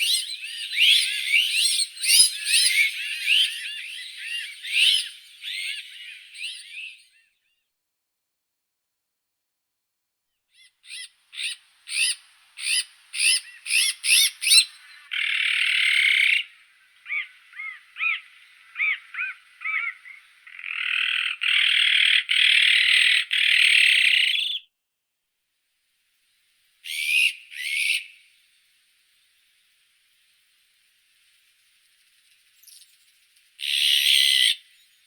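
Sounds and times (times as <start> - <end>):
magpie harsh rasping calls: 10.6 - 16.5, 17.1 - 24.5
magpie short calls: 10.6 - 24.4.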